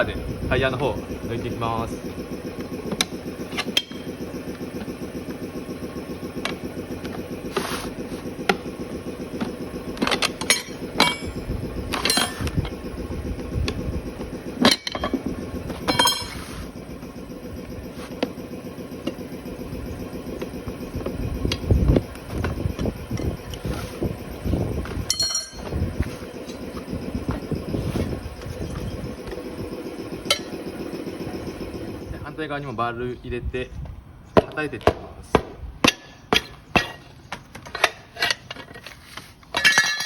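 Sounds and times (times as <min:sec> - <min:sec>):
motor hum: 0:00.0 - 0:34.4
tyre levers scraping wheel rim: 0:06.3 - 0:12.8, 0:35.8 - 0:40.0
metallic clinks: 0:25.1 - 0:25.6.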